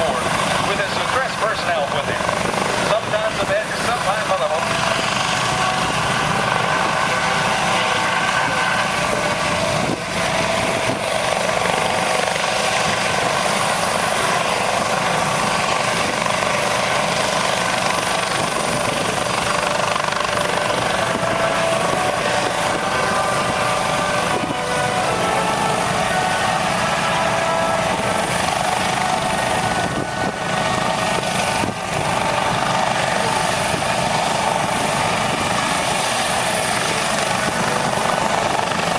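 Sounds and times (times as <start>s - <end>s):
aircraft engine running: 0.0s - 38.9s.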